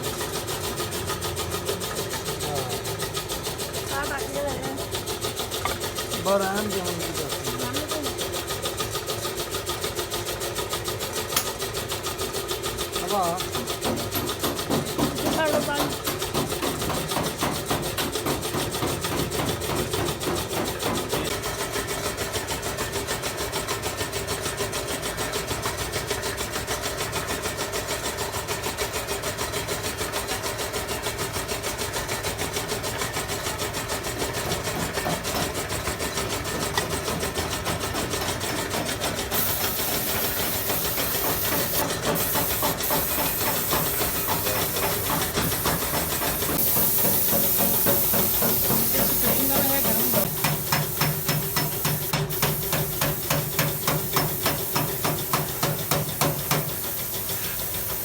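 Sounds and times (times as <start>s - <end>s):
air compressor pulsing: 0.0s - 58.0s
compressed air hissing: 39.3s - 58.0s.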